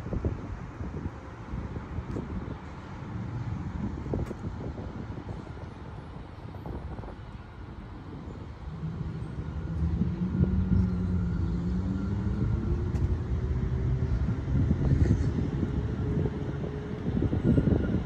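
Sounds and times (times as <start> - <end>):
wind rumble on microphone: 0.0 - 18.0
passing vehicle engine hum: 8.2 - 18.0.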